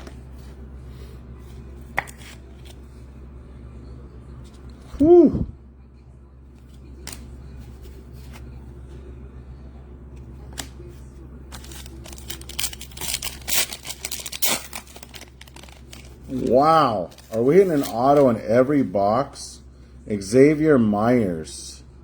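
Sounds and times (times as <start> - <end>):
wrapper crinkling and cards rustling: 11.5 - 18.9.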